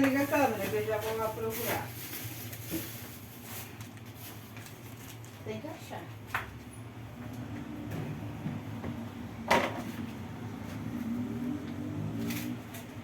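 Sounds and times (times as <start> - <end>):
knocks of cupboards and drawers: 7.6 - 10.2.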